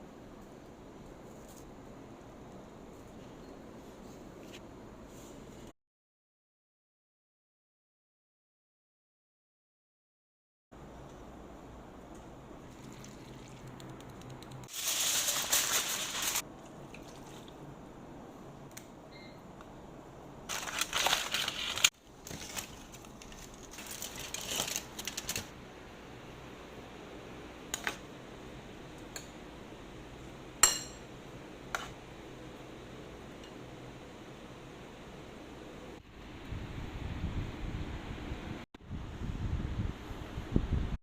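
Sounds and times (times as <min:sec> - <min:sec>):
rustling or scraping: 0:14.7 - 0:16.4.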